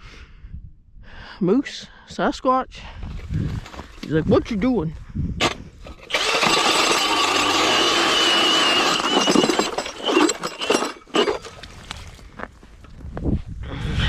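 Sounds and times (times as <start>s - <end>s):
knocks and clatters: 5.4s - 11.7s
ice auger whining: 5.4s - 11.9s.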